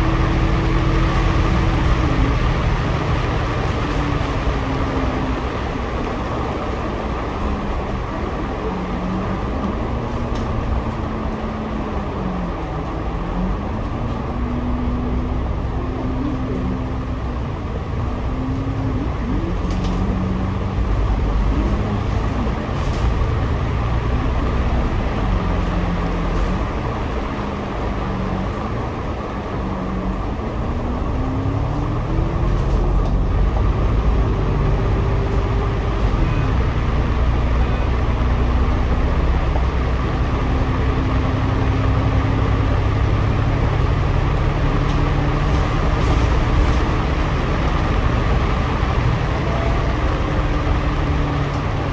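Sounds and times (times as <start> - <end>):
bus engine rumble and whine: 0.0 - 51.9.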